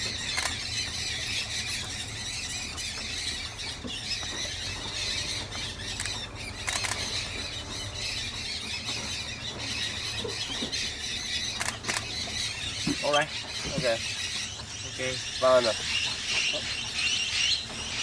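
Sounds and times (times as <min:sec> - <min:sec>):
sharp clicks: 0:00.2 - 0:00.8, 0:05.9 - 0:07.3, 0:11.5 - 0:12.4.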